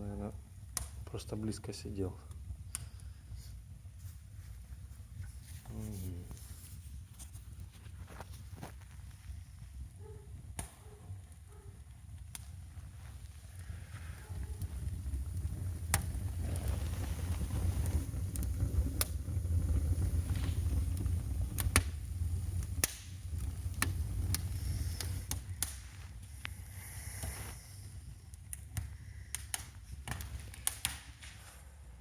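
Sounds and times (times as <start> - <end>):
wood fire crackling: 0.0 - 32.0
low rumble: 12.6 - 28.3.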